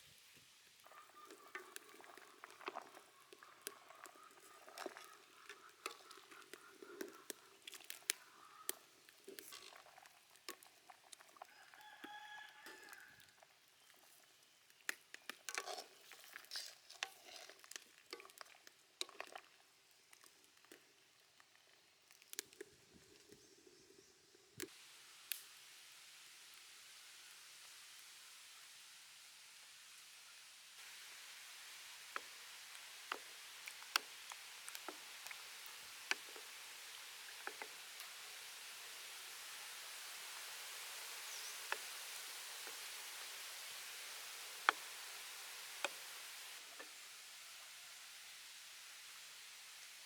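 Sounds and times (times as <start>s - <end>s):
faint steady hiss: 0.0s - 50.0s
stirring in a bowl: 0.9s - 11.5s, 15.1s - 19.5s.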